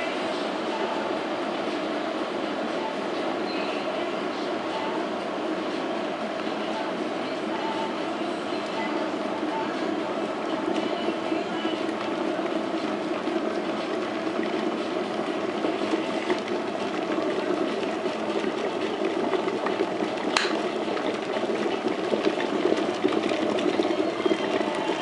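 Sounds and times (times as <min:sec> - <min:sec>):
kettle water bubbling: 0:00.0 - 0:25.0
kettle click: 0:20.3 - 0:20.6.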